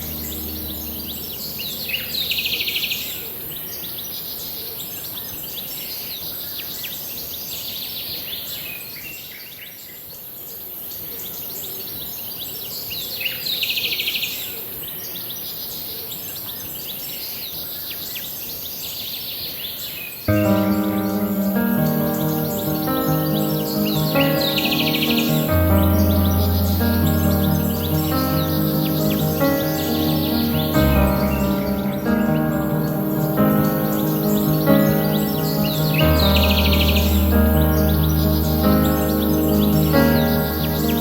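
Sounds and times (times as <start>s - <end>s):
birds chirping: 0.0s - 3.4s, 20.3s - 41.0s
music chord: 0.0s - 3.4s, 20.3s - 41.0s
steady high hiss: 0.0s - 3.4s, 20.3s - 41.0s.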